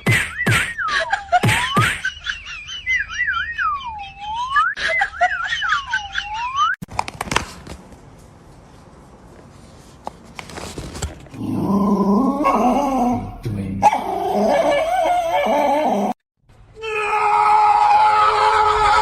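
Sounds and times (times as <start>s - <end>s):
dog howling and whining: 11.4s - 16.2s.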